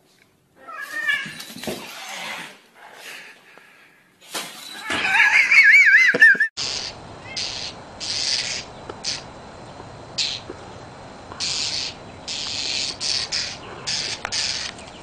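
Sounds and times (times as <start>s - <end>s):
bird squawking harshly: 4.8s - 9.3s, 11.4s - 14.8s.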